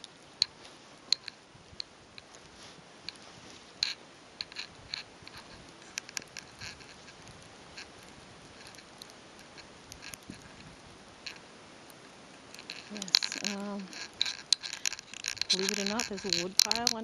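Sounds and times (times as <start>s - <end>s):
footsteps crunching in snow: 2.4s - 3.8s.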